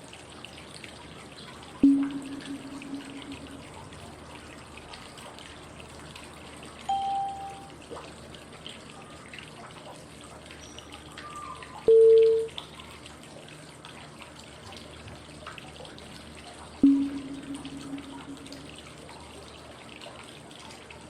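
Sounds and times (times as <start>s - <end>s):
running water white noise: 0.0s - 8.8s, 11.0s - 19.9s
cue tones: 1.8s - 3.8s, 16.8s - 18.9s.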